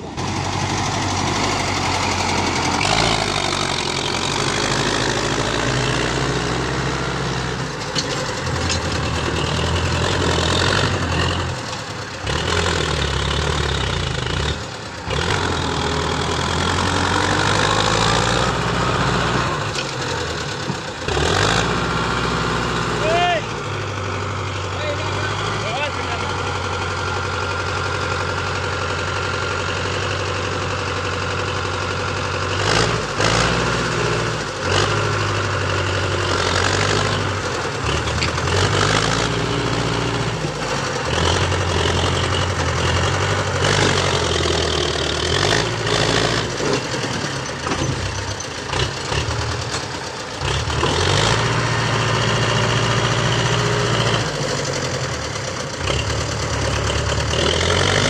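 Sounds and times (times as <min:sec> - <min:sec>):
tractor engine labouring: 0:00.0 - 0:58.0.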